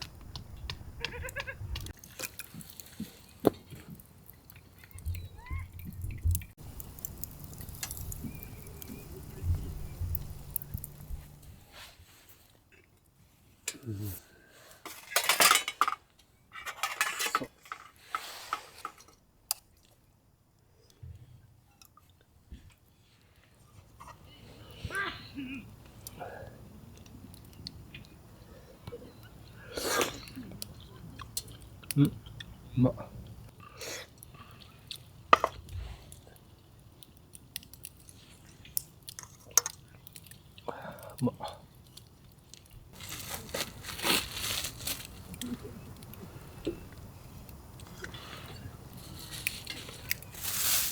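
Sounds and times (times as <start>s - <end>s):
person chewing quietly: 1.8s - 11.5s, 20.9s - 32.6s, 33.2s - 43.5s, 44.6s - 50.3s
cutlery scraping cookware: 14.9s - 16.0s, 16.6s - 19.1s.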